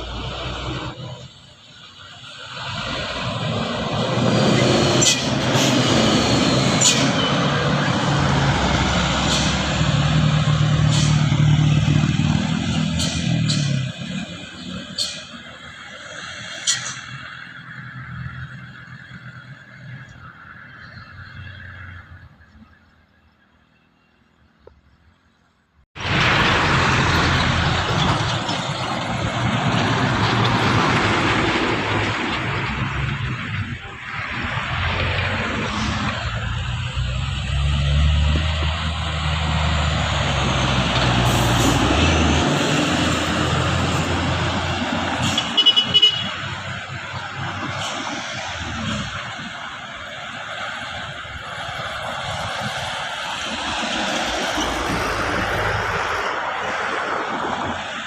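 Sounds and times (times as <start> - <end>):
road noise: 0.0 - 58.0
truck diesel engine running: 26.0 - 56.2.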